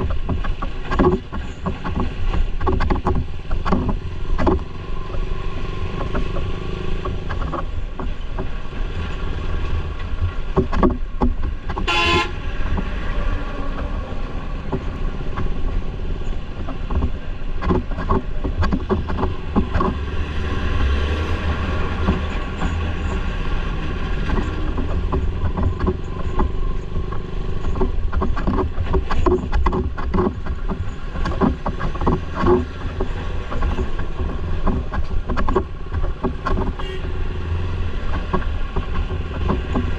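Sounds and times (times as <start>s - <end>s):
clatter: 0.0s - 12.0s, 12.6s - 39.9s
motorbike engine and road noise: 0.0s - 39.9s
vehicle horn honk: 11.8s - 12.4s, 36.8s - 37.2s.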